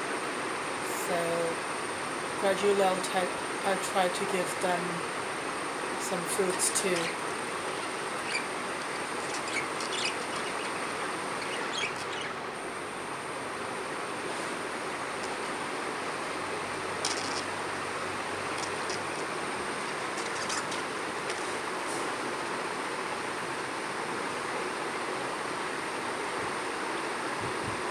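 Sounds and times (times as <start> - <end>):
budgerigars chirping: 7.0 - 12.4.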